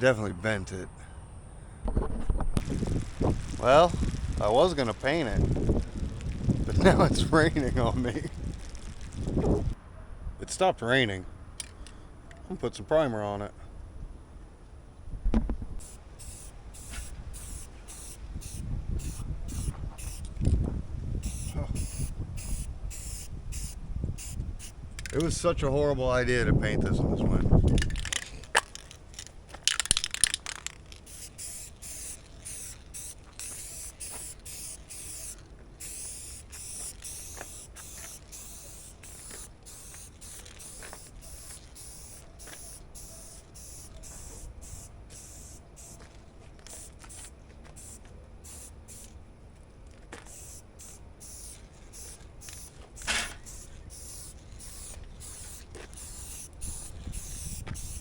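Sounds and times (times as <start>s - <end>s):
wind rumble on microphone: 1.8s - 10.5s, 15.0s - 15.8s, 18.2s - 28.5s, 56.6s - 58.0s
spray paint can hissing: 2.6s - 9.8s, 15.8s - 20.4s, 21.2s - 25.2s, 27.6s - 49.2s, 50.2s - 58.0s.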